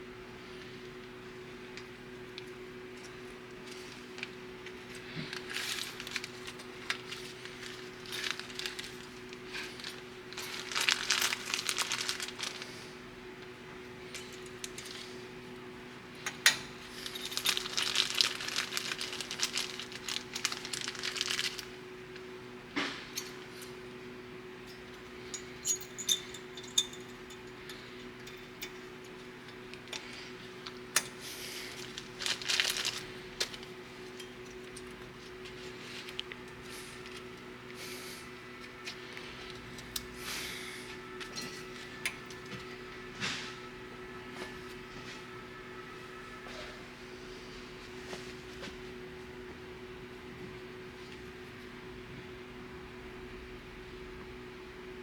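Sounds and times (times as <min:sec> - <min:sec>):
steady low hum: 0:00.0 - 0:55.0
metal tools clinking: 0:23.1 - 0:23.8, 0:24.6 - 0:30.1, 0:41.2 - 0:42.7.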